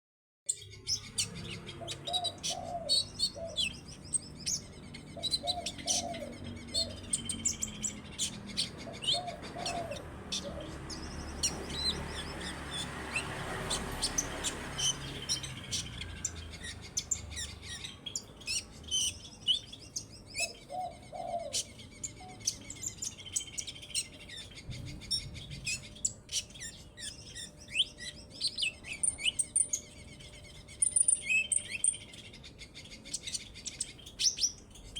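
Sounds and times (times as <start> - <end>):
sunbird twittering chirps: 0.5 - 34.9.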